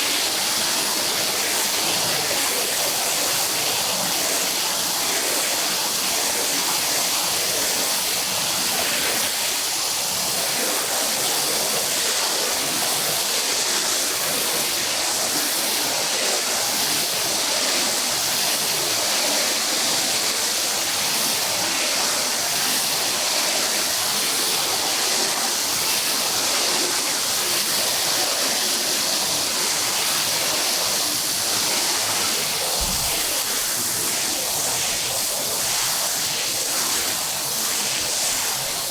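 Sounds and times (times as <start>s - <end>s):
spraying water hiss: 14.1s - 38.9s.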